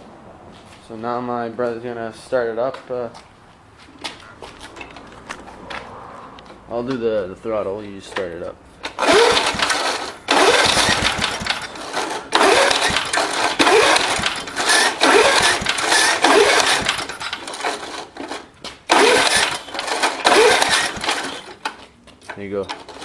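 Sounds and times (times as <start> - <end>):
lawnmower engine turning over: 8.1 - 23.0
recoil starter rope whir: 8.8 - 21.8.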